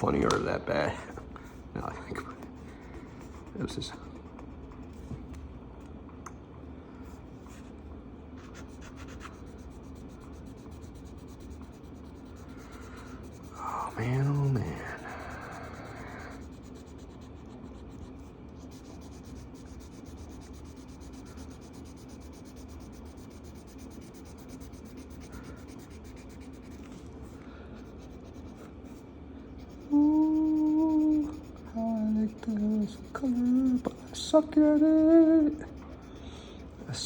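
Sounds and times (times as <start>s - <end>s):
marker scratching on paper: 1.2s - 5.1s, 8.4s - 37.0s
man humming: 29.8s - 35.7s.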